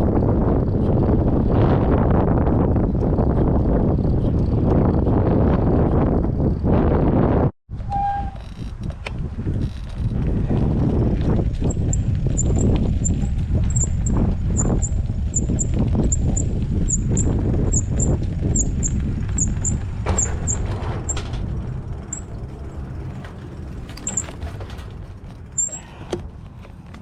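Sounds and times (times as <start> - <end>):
rumble of wind and tyres: 0.0 - 27.0
bike squeaking: 7.8 - 27.0.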